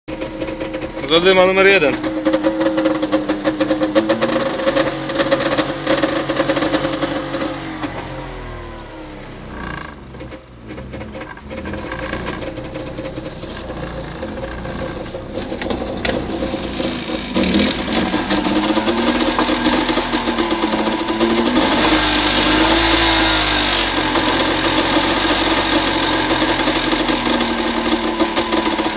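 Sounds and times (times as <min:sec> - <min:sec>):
van engine revving: 0:00.1 - 0:28.9.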